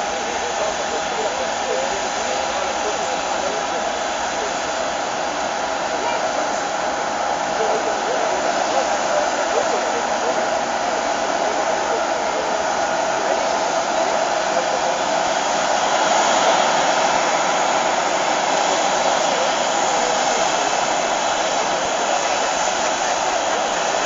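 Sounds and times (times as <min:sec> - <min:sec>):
jet engine running: 0:00.0 - 0:24.0.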